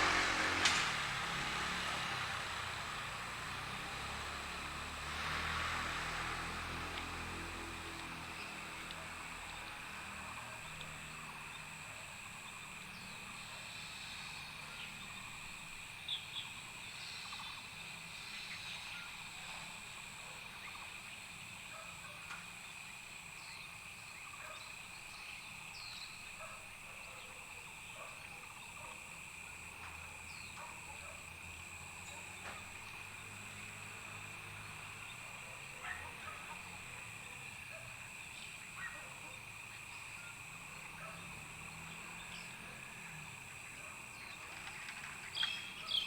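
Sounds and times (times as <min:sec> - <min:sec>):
high insect drone: 0:00.0 - 0:46.0
short chirping calls: 0:45.3 - 0:46.0.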